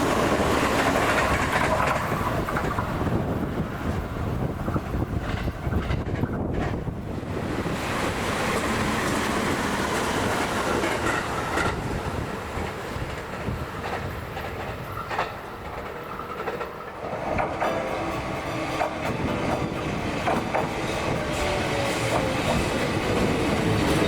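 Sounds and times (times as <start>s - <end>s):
electric train running: 0.0s - 24.0s
wheel clacks over rail joints: 9.9s - 24.0s.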